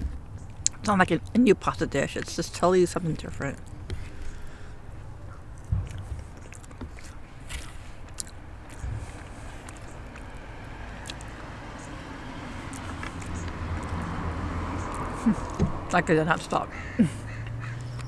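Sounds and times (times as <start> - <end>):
close chewing: 3.5 - 10.4, 11.0 - 15.7.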